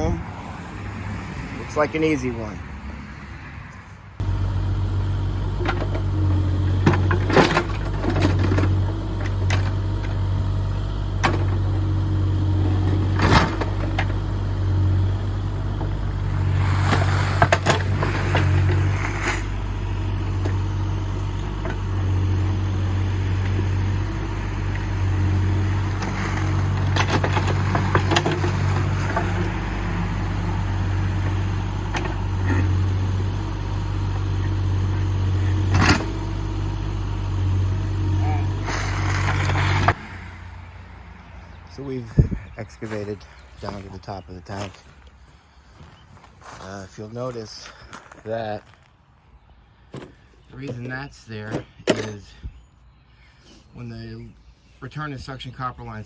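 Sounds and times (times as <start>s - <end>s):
excavator diesel engine running: 4.2s - 44.6s
bucket clanks and scrapes: 6.7s - 10.2s, 16.3s - 19.6s, 24.8s - 29.6s.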